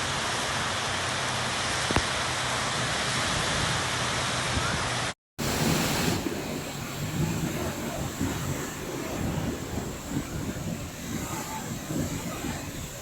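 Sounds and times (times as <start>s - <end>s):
rain: 0.0s - 13.0s
heavy low rumble: 5.4s - 13.0s.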